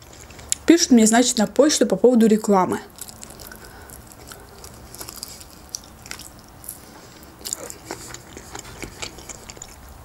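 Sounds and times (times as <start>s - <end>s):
person chewing: 0.0s - 0.7s, 2.9s - 10.0s.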